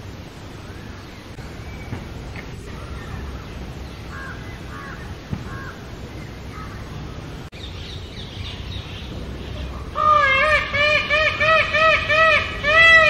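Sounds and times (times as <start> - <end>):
small birds chirping: 0.5 - 10.2
low rumble: 1.3 - 11.4
bird caws: 4.1 - 5.9, 6.5 - 7.0, 9.9 - 13.0.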